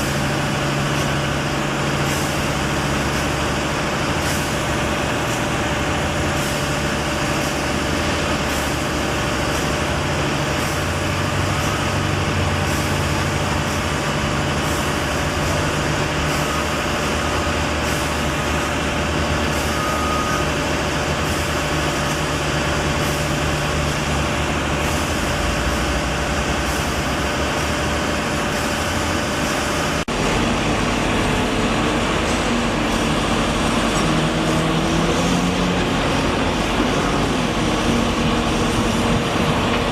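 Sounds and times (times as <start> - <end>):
heavy engine idling: 0.0 - 39.9.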